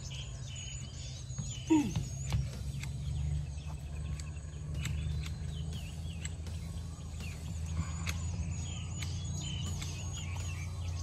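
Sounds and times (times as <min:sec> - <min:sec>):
birds chirping: 0:00.0 - 0:11.0
steady low hum: 0:00.0 - 0:11.0
light clicks: 0:02.0 - 0:10.7.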